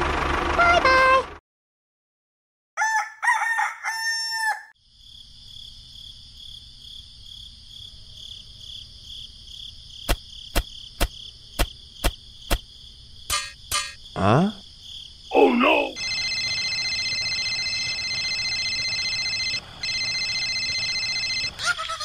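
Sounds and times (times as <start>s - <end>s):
rooster crowing: 2.8s - 4.8s
high insect chirring: 9.6s - 19.0s.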